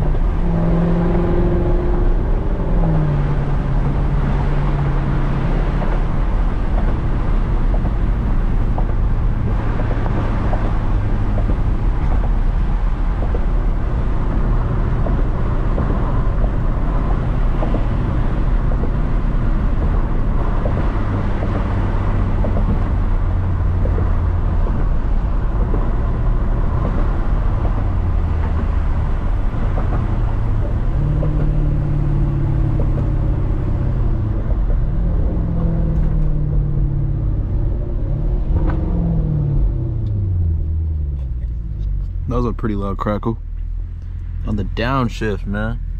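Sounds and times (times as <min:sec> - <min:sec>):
car engine droning while driving: 0:00.0 - 0:45.9.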